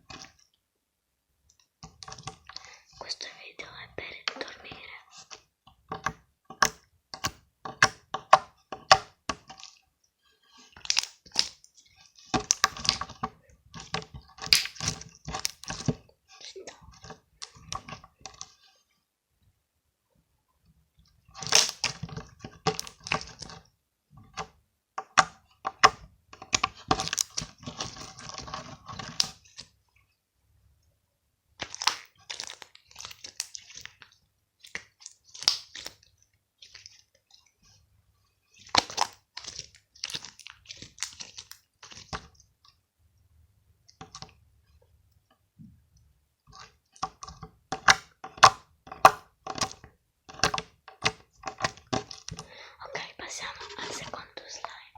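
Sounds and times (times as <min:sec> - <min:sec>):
slime crackling and popping: 0:10.8 - 0:16.0, 0:21.4 - 0:23.5, 0:26.4 - 0:29.6, 0:31.6 - 0:37.0, 0:38.5 - 0:42.3.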